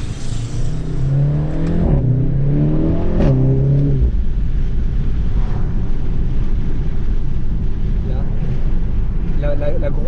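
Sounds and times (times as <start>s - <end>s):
car engine pulling: 0.0s - 10.0s
low road rumble: 0.0s - 10.0s.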